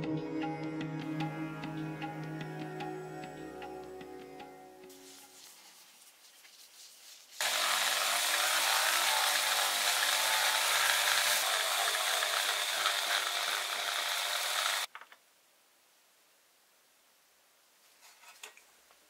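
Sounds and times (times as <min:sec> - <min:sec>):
power tool hissing: 0:07.4 - 0:14.9.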